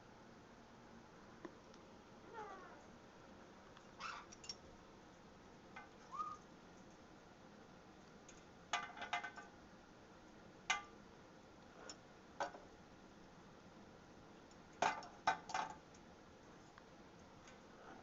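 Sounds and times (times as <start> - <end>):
parrot whistling and calling: 6.1 - 6.4.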